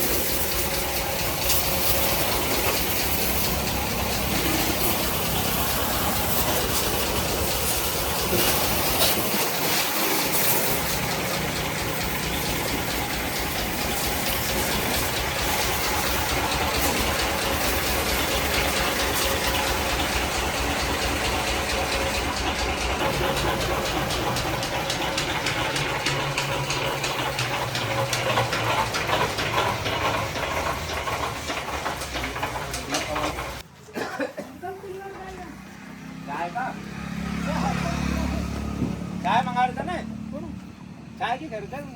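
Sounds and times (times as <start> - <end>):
gushing water: 0.0 - 33.6
tractor engine running: 0.0 - 33.7, 34.6 - 41.9.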